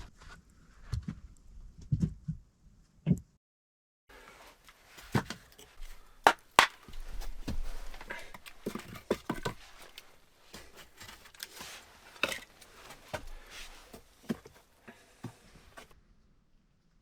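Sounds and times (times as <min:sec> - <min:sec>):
rustling: 0:04.1 - 0:16.0.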